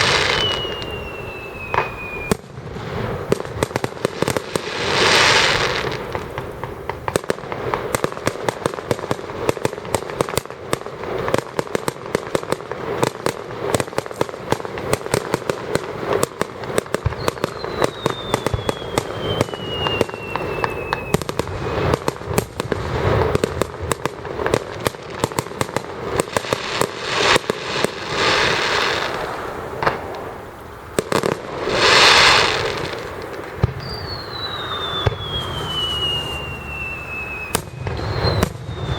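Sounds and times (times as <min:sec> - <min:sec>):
falling firework whistle: 0:00.0 - 0:08.1, 0:16.1 - 0:23.7, 0:31.1 - 0:38.9
firework bursts: 0:00.0 - 0:38.9
fireworks crackling: 0:00.0 - 0:38.9.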